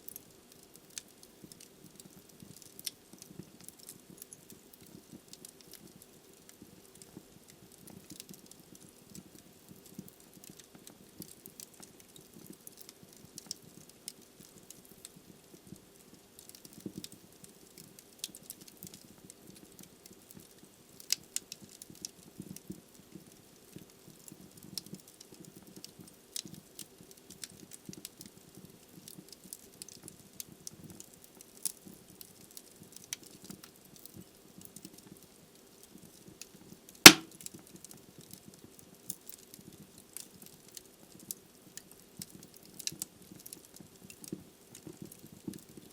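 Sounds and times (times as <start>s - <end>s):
fireplace fire crackling: 0.0s - 45.9s
loud sharp fire pop: 37.1s - 37.3s.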